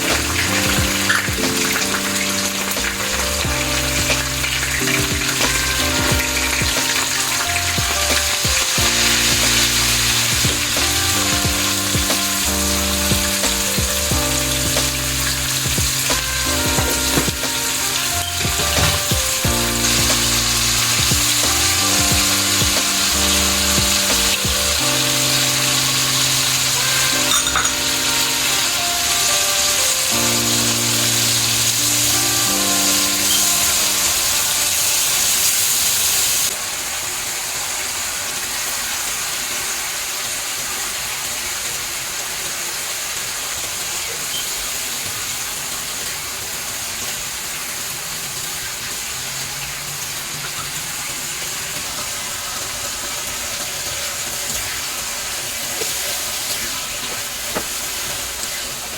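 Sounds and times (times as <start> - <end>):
soft background music: 0.0 - 36.5
food sizzling in a pan: 0.0 - 58.9.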